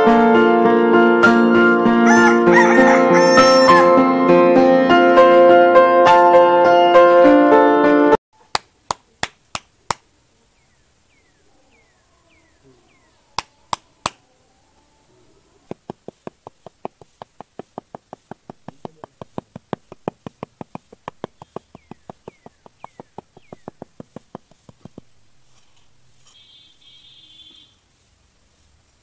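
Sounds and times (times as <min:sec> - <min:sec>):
metal trowel tapping: 0:15.7 - 0:25.1.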